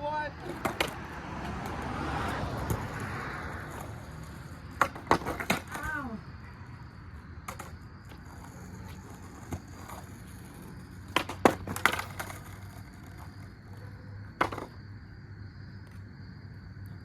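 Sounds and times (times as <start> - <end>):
skateboard clacks: 0.3 - 6.2, 7.2 - 14.8.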